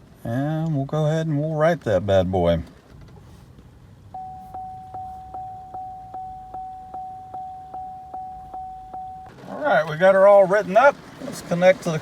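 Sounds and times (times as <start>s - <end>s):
regular ticking: 4.0s - 9.4s
electronic beep tone: 4.2s - 9.3s.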